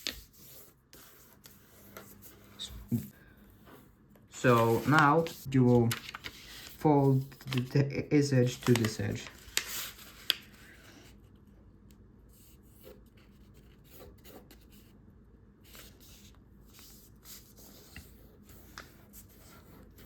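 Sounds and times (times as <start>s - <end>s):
paper rustling being folded: 4.3s - 11.2s.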